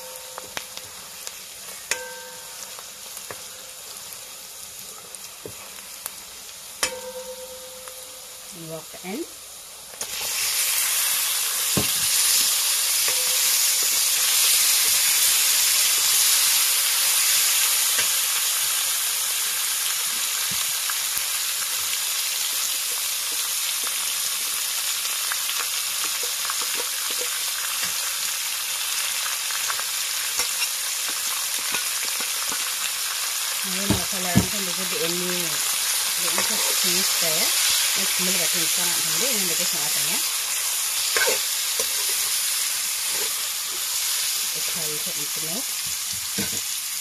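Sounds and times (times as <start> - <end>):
food sizzling in oil: 0.0 - 47.0
ladle scraping a wok: 41.1 - 42.4, 43.0 - 43.9.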